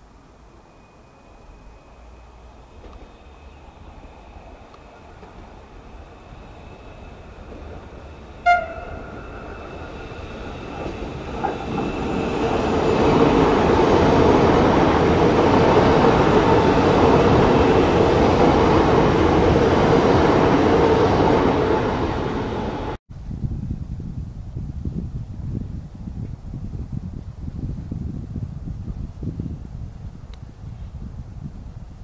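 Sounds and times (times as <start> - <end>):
train passing close by: 0.0 - 23.0
train horn toot: 6.7 - 10.6.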